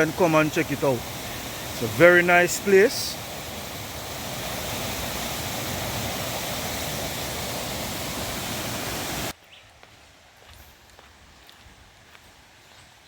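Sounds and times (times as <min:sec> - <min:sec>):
waterfall rushing: 0:00.0 - 0:09.3
quiet outdoor ambience: 0:00.0 - 0:13.0.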